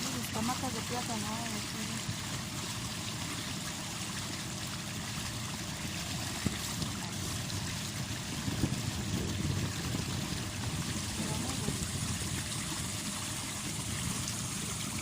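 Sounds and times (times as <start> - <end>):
water rushing and trickling: 0.0 - 15.0.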